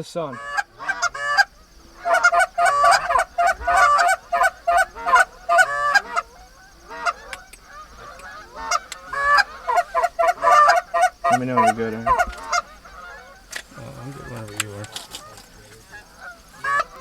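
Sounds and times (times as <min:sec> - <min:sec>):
geese honking and clucking: 0:00.0 - 0:17.0.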